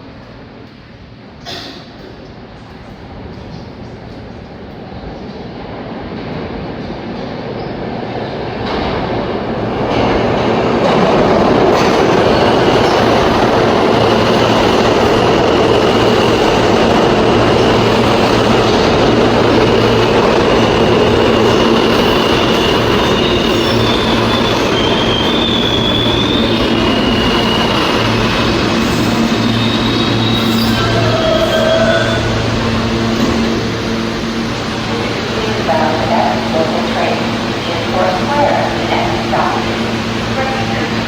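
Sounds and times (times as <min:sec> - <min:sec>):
subway train running on track: 0:00.0 - 0:41.0
high wheel squeal: 0:19.5 - 0:34.0.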